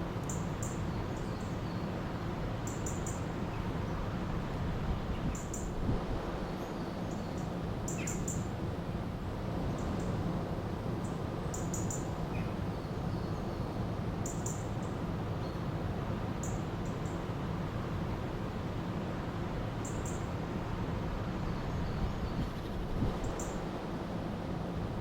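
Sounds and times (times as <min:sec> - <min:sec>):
small birds chirping: 0:00.2 - 0:04.1, 0:06.4 - 0:08.5.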